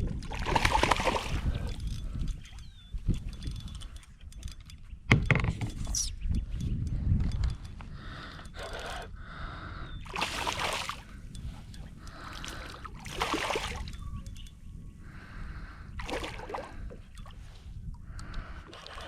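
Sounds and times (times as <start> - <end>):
water splashing: 10.1 - 11.0.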